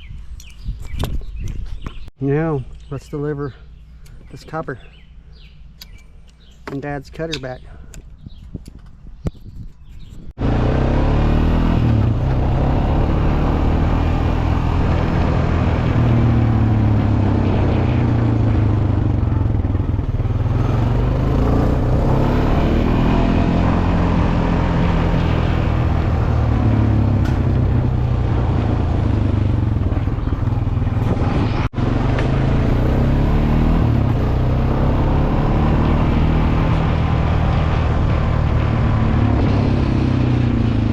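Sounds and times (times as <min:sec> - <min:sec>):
wind rush on microphone: 0:00.0 - 0:02.1, 0:07.7 - 0:10.4, 0:22.8 - 0:31.8
low vehicle drone: 0:10.3 - 0:40.9.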